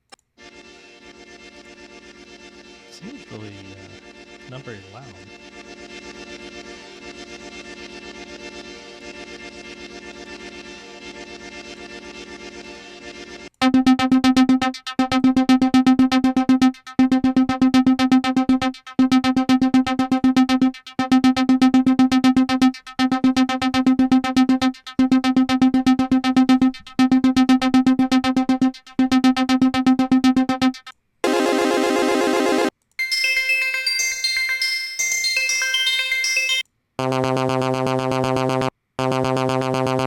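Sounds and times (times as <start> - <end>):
buzzy pulsing synthesizer note: 13.6 - 32.7, 37.0 - 40.0.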